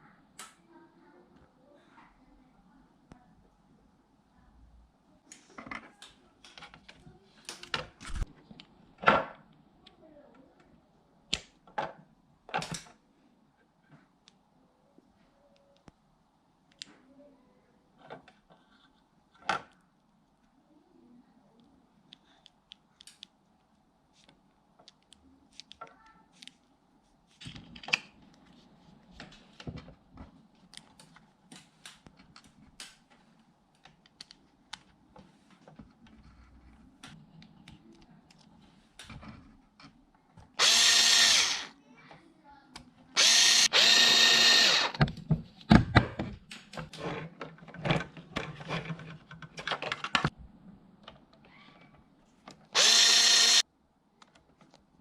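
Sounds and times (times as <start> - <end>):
electric drill whining: 40.6 - 41.7, 43.2 - 45.0, 52.8 - 53.6.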